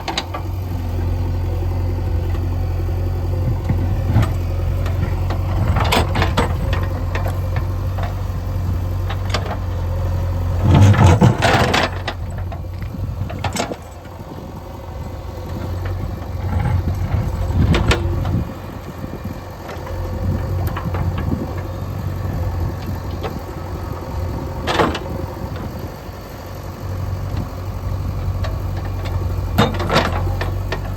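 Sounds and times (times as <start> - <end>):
diesel engine running: 0.0 - 30.9
bucket clanking and scraping stones: 10.6 - 12.2.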